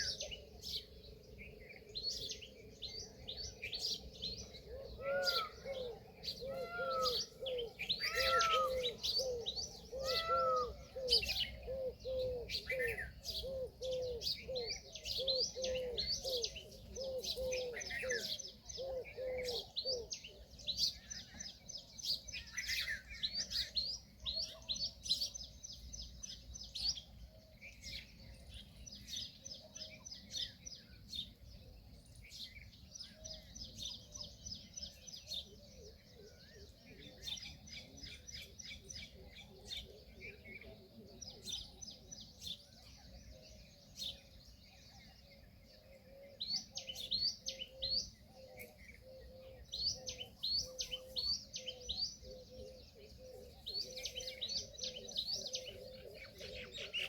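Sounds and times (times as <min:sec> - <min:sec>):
small birds chirping and trilling: 0:00.0 - 0:57.0
low arched bird call: 0:04.7 - 0:20.4.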